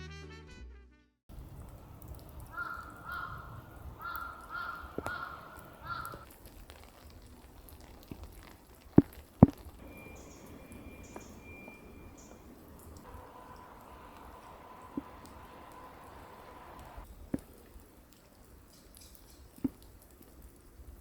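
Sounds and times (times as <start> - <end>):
crow cawing: 2.4 - 6.4.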